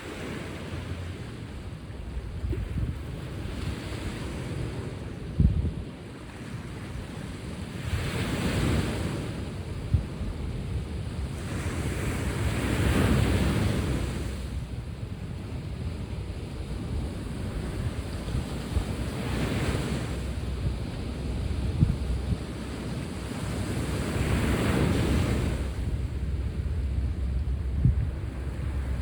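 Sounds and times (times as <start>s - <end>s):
sea waves breaking: 0.0s - 29.0s
wind rumbling on microphone: 0.0s - 29.0s.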